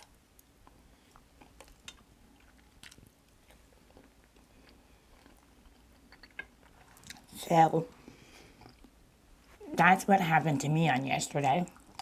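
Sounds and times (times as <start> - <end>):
person chewing: 0.0 - 7.4, 8.0 - 9.0, 11.7 - 12.0.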